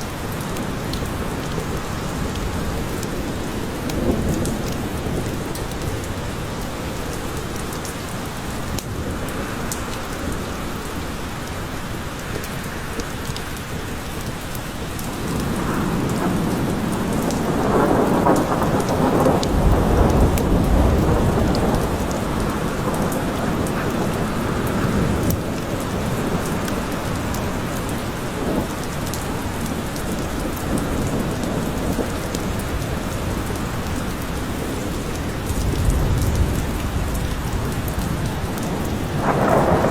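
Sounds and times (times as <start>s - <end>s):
steady rain falling: 0.0s - 39.9s
thunder rolling: 15.2s - 27.6s, 34.9s - 39.9s.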